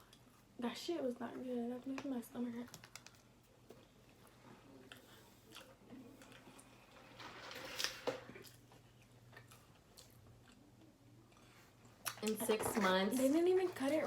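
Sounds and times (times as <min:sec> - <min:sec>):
chewing: 0:03.7 - 0:06.9, 0:08.3 - 0:12.4
rustling of food handling: 0:11.4 - 0:14.0.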